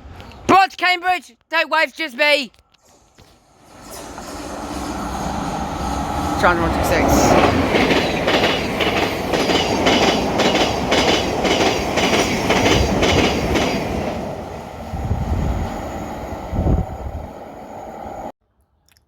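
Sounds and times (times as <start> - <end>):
train wheels clattering over rail joints: 2.9 - 14.1.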